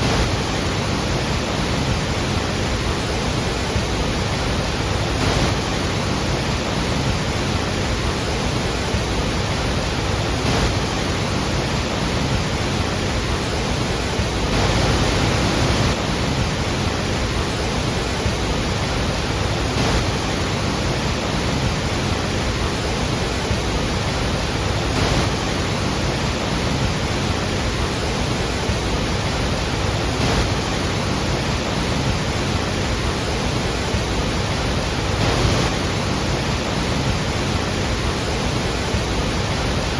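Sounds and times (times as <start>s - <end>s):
large waterfall roaring: 0.0s - 39.9s.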